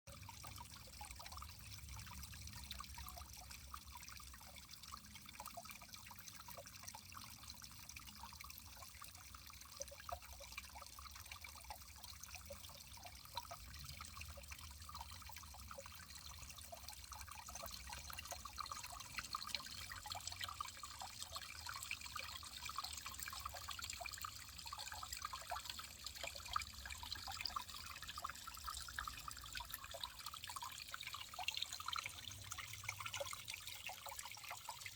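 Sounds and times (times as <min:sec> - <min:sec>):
small splashes and drips: 0:00.1 - 0:34.9
water trickling: 0:00.1 - 0:34.9.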